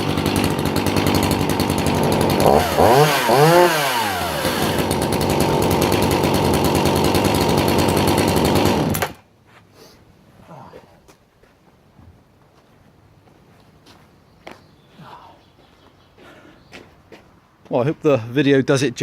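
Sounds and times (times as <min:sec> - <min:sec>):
chainsaw engine idling and revving: 0:00.0 - 0:09.2.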